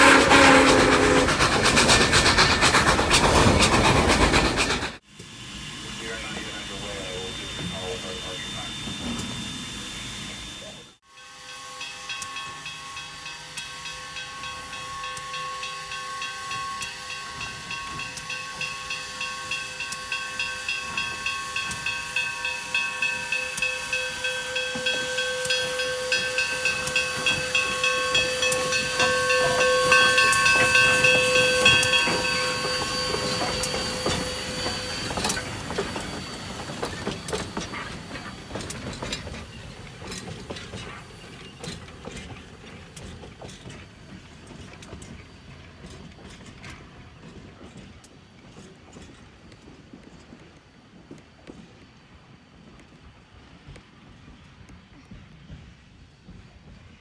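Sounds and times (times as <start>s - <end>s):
steam hiss: 0.0s - 46.0s
steam locomotive exhaust beats: 0.0s - 57.0s.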